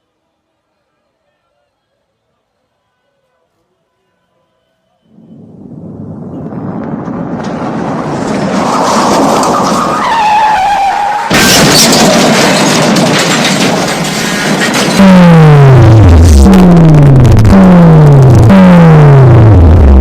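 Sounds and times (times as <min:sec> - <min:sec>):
car rushing rumble: 0:05.1 - 0:20.0
loud car crash: 0:05.3 - 0:18.2
clattering debris: 0:06.5 - 0:16.3.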